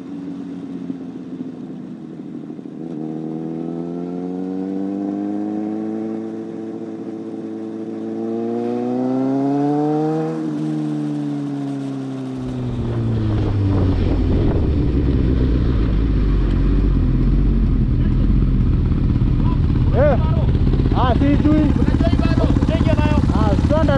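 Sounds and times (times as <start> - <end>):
motorcycle engine accelerating: 0.0 - 23.9
rough low rumble: 12.3 - 23.9.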